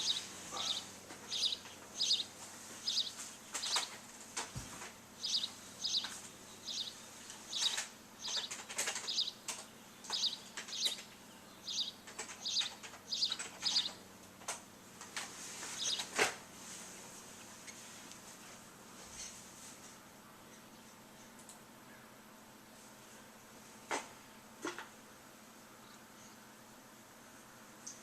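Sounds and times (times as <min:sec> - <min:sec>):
small birds chirping: 0:00.0 - 0:16.3, 0:16.9 - 0:19.6, 0:20.2 - 0:22.3, 0:25.6 - 0:26.6, 0:27.7 - 0:28.0
sharp clicks: 0:07.5 - 0:11.1.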